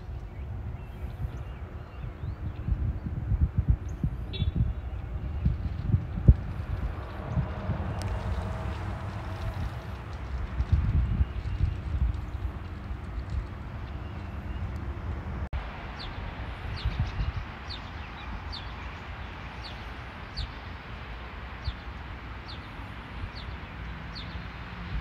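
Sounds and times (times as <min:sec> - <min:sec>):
steady outdoor hiss: 0:00.0 - 0:25.0
low rumble: 0:02.2 - 0:17.4.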